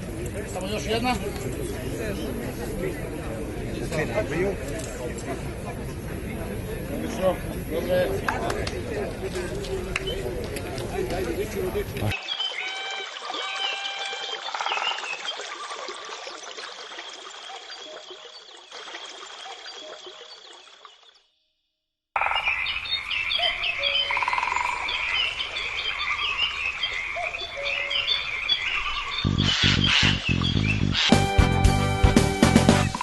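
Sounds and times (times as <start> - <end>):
pulsed croaking calls: 22.2 - 31.1
chorus of chirping calls: 22.2 - 31.2.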